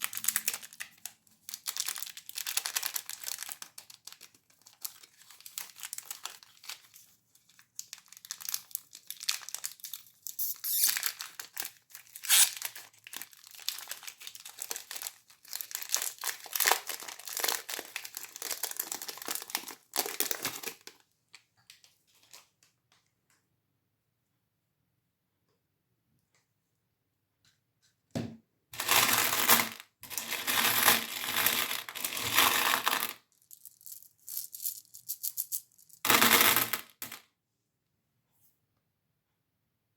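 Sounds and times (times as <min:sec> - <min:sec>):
candy wrappers crinkling: 0:00.0 - 0:22.5, 0:28.8 - 0:37.2.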